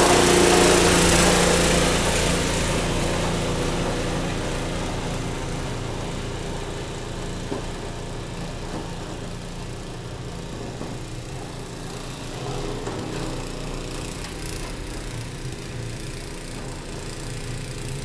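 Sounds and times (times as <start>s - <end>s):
snowblower engine running: 0.0s - 18.0s.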